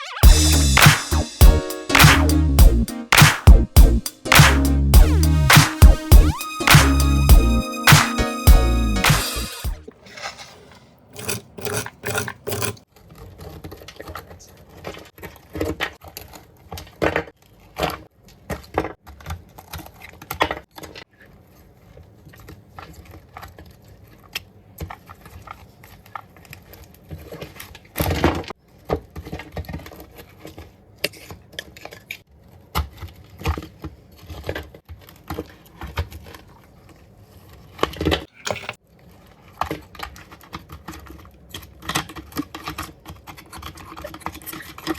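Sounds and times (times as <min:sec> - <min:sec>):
scraping: 0:09.0 - 0:12.8.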